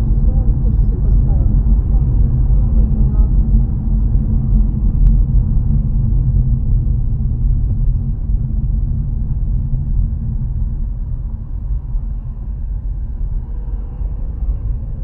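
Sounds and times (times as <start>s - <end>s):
car interior road rumble: 0.0s - 15.0s.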